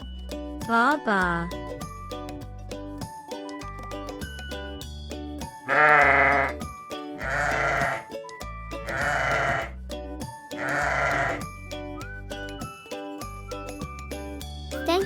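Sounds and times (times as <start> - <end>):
sheep bleating: 5.7 - 6.5, 7.2 - 8.0, 8.9 - 9.7, 10.6 - 11.4.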